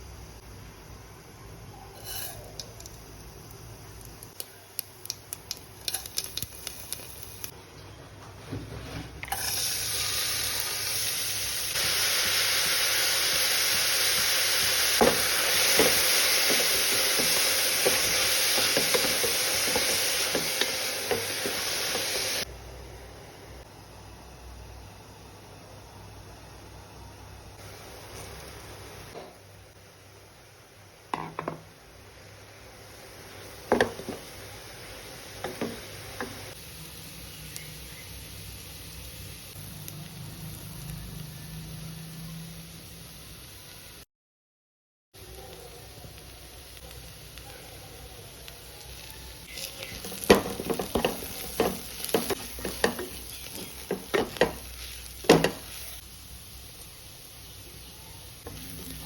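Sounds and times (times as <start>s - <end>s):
low sizzle: 0.0s - 44.1s, 45.2s - 59.0s
spoon knocking and scraping pan: 11.8s - 22.4s, 33.6s - 34.4s, 35.4s - 36.5s, 49.9s - 55.8s
cooking utensils knocking: 35.4s - 36.4s, 50.0s - 55.7s.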